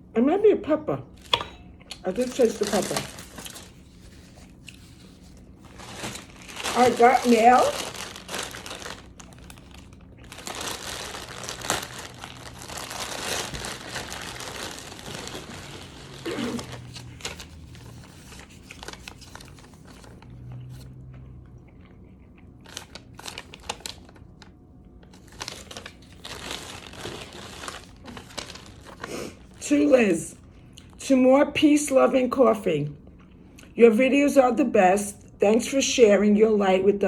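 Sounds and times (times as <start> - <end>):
packaging crinkling and rustling: 1.2 - 20.9, 22.6 - 30.0.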